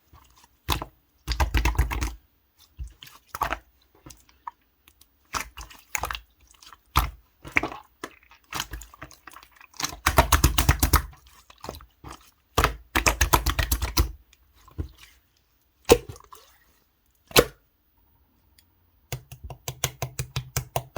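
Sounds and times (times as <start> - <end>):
slime squished by hand: 0.2 - 2.2, 5.3 - 15.2.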